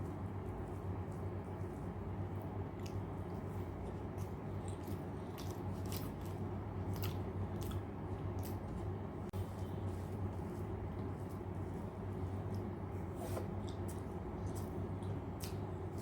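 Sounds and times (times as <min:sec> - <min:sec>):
steady low hum: 0:00.0 - 0:16.0
person chewing food: 0:02.4 - 0:11.6, 0:13.6 - 0:16.0.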